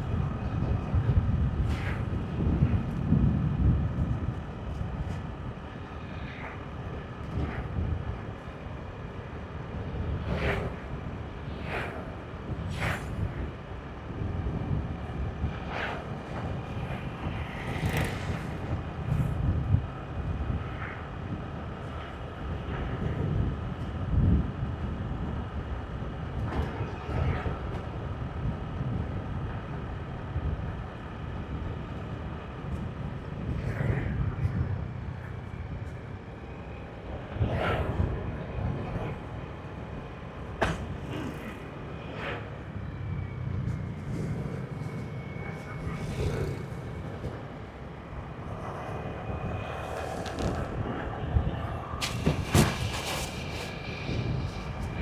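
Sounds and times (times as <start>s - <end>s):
wind buffeting microphone: 0.0s - 55.0s
short whooshes: 48.4s - 55.0s.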